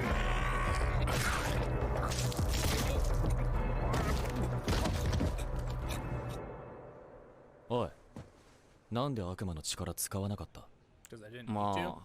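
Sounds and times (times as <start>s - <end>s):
tense background score: 0.0s - 7.7s.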